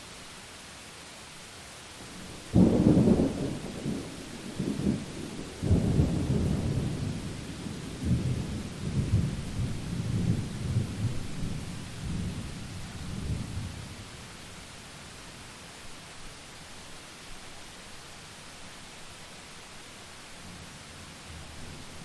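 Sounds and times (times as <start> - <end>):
rain hiss: 0.0 - 22.0
thunder rumbling: 2.2 - 13.9.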